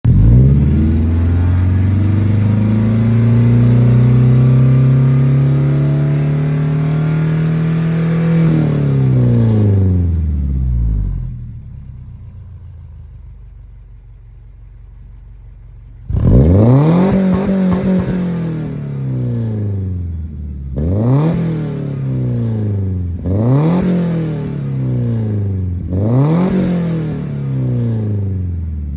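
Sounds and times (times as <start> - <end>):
car engine revving: 0.0 - 11.3, 16.1 - 28.9
car engine idling: 0.0 - 20.8.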